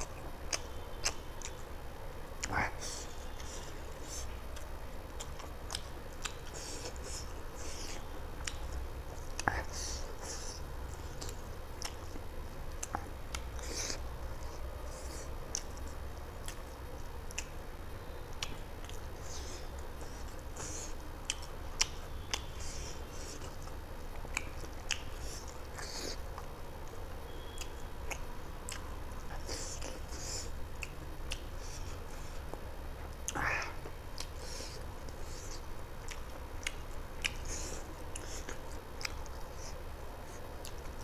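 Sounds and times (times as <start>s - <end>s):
wet mouth clicks and smacks: 0.0s - 1.6s, 23.3s - 31.5s, 33.2s - 39.4s
steady low hum: 0.0s - 41.0s.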